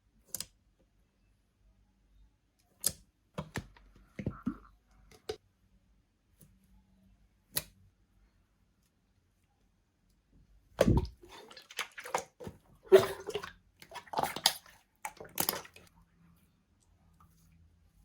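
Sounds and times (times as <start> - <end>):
slime squelching: 10.8 - 16.0.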